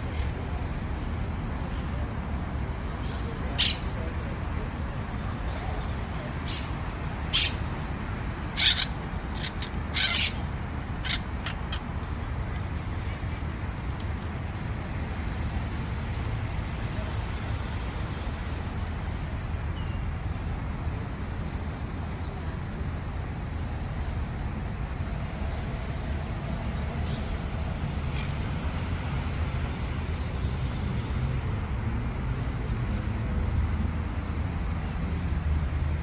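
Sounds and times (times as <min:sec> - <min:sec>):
parrots squawking: 0:07.3 - 0:07.6, 0:08.5 - 0:11.9.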